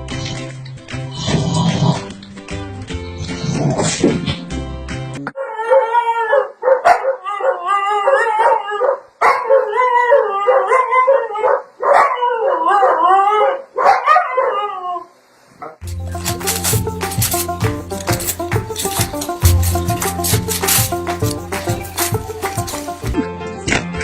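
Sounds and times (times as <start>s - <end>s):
dog howling: 5.4s - 15.1s.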